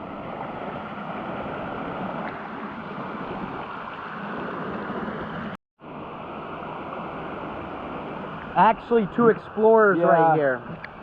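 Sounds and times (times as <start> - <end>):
stream water rushing over cascades: 0.0 - 11.0.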